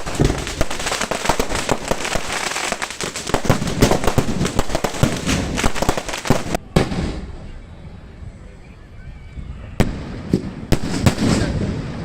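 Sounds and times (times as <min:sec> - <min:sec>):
fireworks cracks and bangs: 0:00.0 - 0:07.4, 0:09.8 - 0:12.0.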